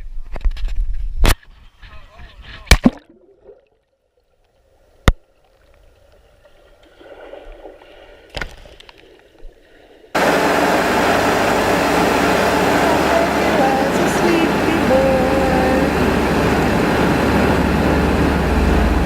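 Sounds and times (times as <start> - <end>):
faint water sloshing: 2.7 - 19.0
loud rush of water: 10.2 - 19.0.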